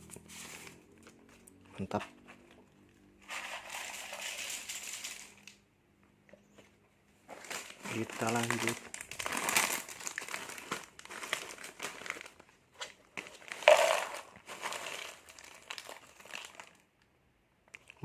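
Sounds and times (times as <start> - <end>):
plastic snack packets crinkling: 3.3 - 5.6, 7.3 - 17.0.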